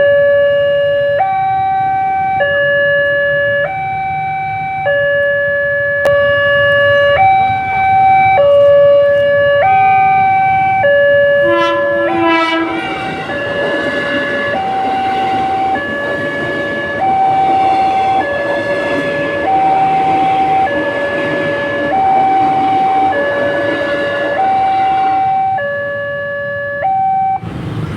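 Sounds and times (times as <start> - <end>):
level crossing two-tone alarm: 0.0 - 27.4
train passing: 5.9 - 27.9
train horn blast: 11.3 - 25.8.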